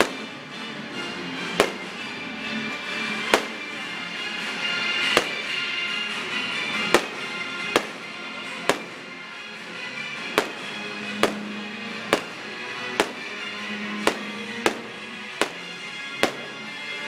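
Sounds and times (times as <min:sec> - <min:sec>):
music playing: 0:00.0 - 0:17.0
firework shells bursting: 0:01.6 - 0:02.0, 0:03.3 - 0:03.7, 0:05.0 - 0:05.6, 0:06.9 - 0:09.1, 0:10.3 - 0:12.4, 0:13.0 - 0:13.3, 0:14.0 - 0:16.6.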